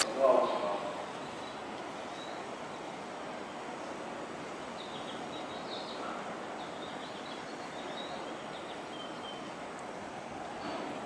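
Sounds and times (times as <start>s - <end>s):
faint bird-like chirps: 0.4s - 3.0s, 4.7s - 9.5s.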